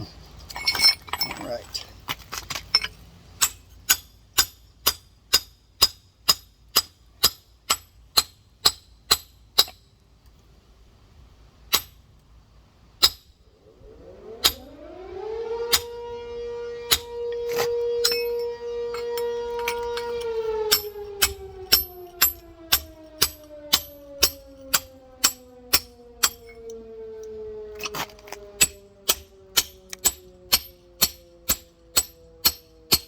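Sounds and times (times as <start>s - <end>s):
hammer striking stone: 2.8s - 9.8s
siren winding up: 13.5s - 33.0s.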